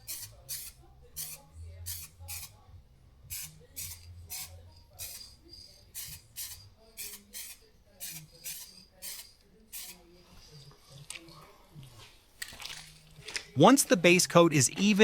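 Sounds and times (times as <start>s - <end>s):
aerosol spray can hissing: 0.0s - 2.6s, 3.3s - 10.6s.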